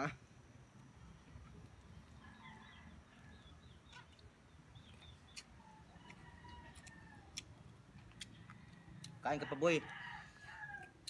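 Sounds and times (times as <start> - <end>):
faint birds chirping: 0.0 - 10.9.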